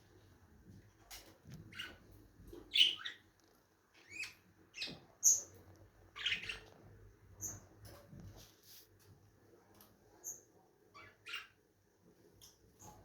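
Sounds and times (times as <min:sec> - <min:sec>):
lovebirds chirping: 0:02.6 - 0:03.3, 0:03.9 - 0:06.7.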